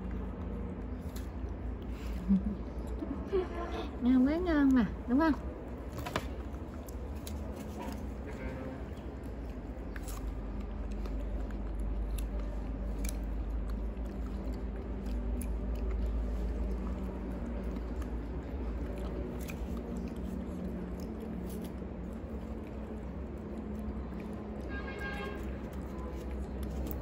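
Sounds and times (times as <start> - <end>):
chewing soft fruit: 0.0 - 27.0
steady low rumble: 0.0 - 27.0.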